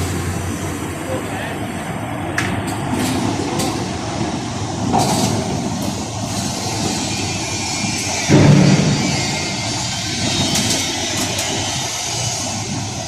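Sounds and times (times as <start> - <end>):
low burst: 8.3 - 11.1.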